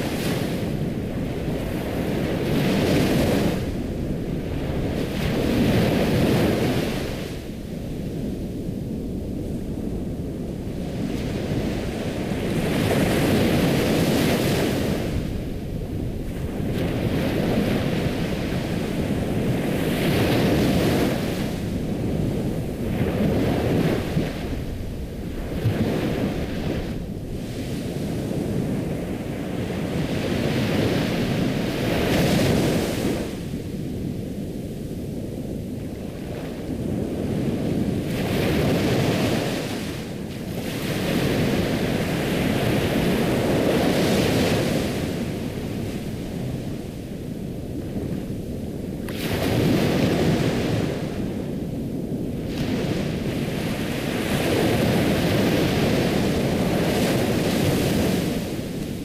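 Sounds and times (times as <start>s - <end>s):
ocean waves washing ashore: 0.0s - 59.0s.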